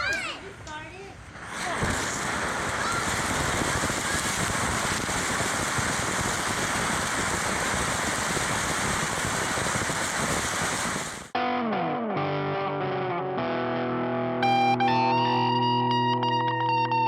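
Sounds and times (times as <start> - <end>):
firework fountain hissing and crackling: 0.0 - 11.4.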